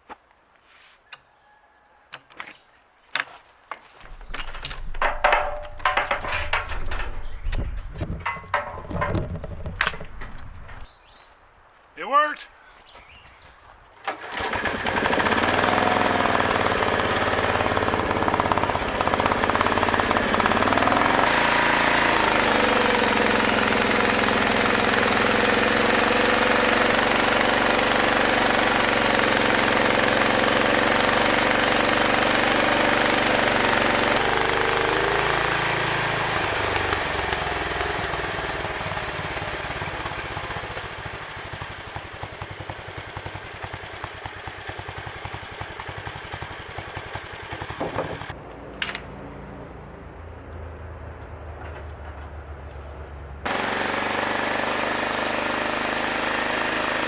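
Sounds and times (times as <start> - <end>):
sawmill engine running: 4.0 - 10.9, 14.1 - 48.5, 53.4 - 57.0.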